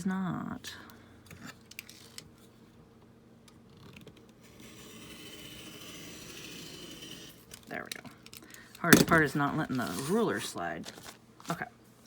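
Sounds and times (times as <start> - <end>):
blade scratching along paper: 4.4 - 7.5.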